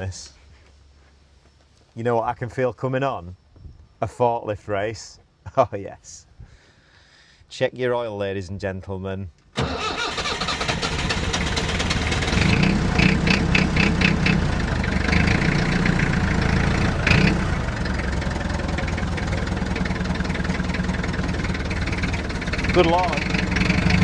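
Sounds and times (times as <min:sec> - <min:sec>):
diesel engine idling: 0:09.6 - 0:24.0.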